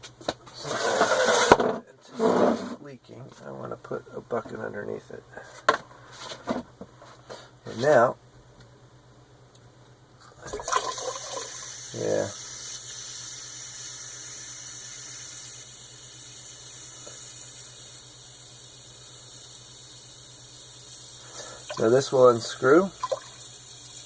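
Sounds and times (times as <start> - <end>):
water rushing into a bucket: 10.5 - 13.4, 21.4 - 24.0.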